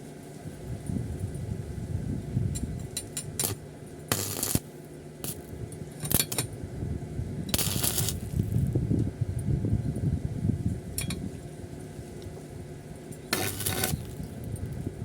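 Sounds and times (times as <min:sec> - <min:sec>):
steady low rumble: 0:00.6 - 0:15.0
short sharp noisy bursts: 0:03.4 - 0:05.4, 0:07.6 - 0:08.7, 0:13.4 - 0:14.3.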